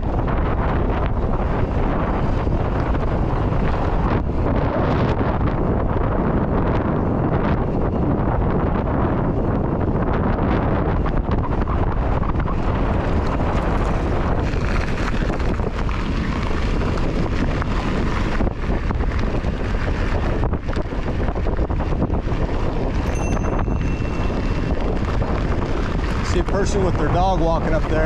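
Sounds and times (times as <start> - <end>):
wind buffeting microphone: 0.0 - 28.0
faint high tone: 23.1 - 24.4.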